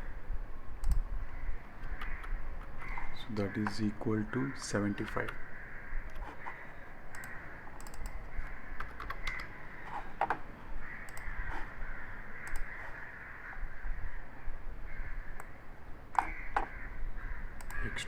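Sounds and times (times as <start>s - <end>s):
computer mouse clicks: 0.8s - 1.0s, 1.6s - 3.9s, 4.6s - 5.4s, 6.0s - 10.4s, 11.0s - 11.8s, 12.4s - 13.1s, 15.4s - 16.8s, 17.6s - 17.8s
keyboard key presses: 1.7s - 3.9s, 4.9s - 5.4s, 6.0s - 11.7s, 16.1s - 16.8s.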